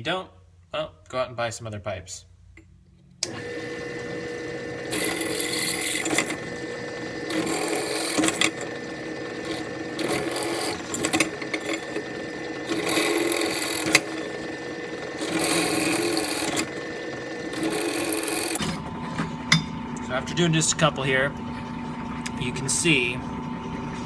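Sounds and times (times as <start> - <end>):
electric drill cutting metal: 3.2 - 18.6.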